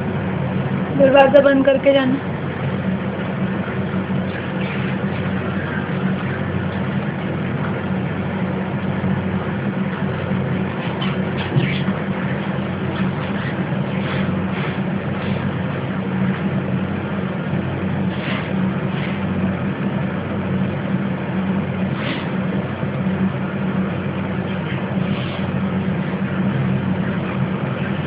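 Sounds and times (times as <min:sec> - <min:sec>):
low machine hum: 0:00.0 - 0:28.0
budgies chirping: 0:04.1 - 0:07.0, 0:10.7 - 0:15.4, 0:24.5 - 0:25.5.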